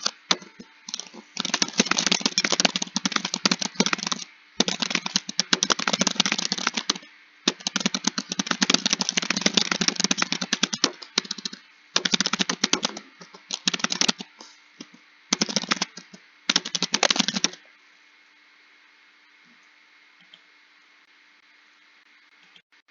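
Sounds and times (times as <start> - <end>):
typing on computer keyboard: 0.0 - 17.6.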